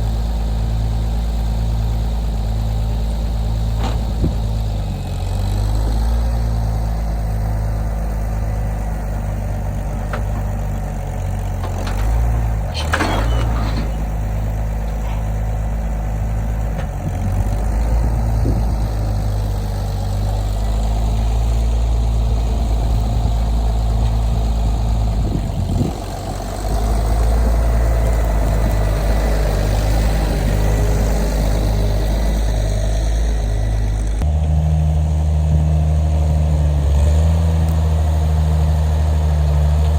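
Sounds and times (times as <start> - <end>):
vehicle engine running: 0.0 - 39.9
brief rattle: 11.6 - 15.4.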